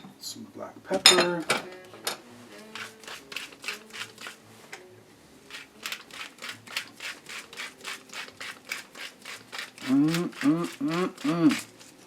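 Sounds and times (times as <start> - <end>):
pepper mill grinding: 2.6 - 4.4, 5.5 - 12.0.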